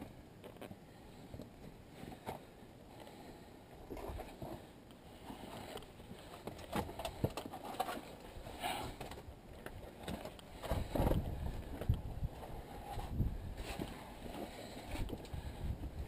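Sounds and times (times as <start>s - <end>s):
wind buffeting microphone: 10.7s - 13.7s.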